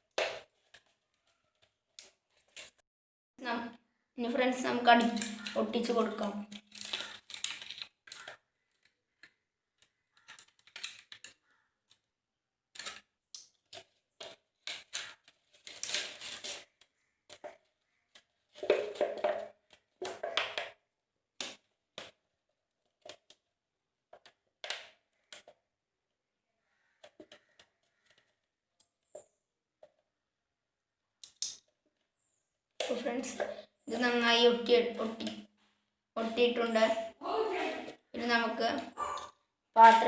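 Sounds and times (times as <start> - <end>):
plastic bottles clicking and crackling: 0.0 - 2.8, 4.6 - 12.1, 12.7 - 23.5, 24.1 - 25.6, 26.9 - 30.0, 32.8 - 35.6, 37.8 - 40.0.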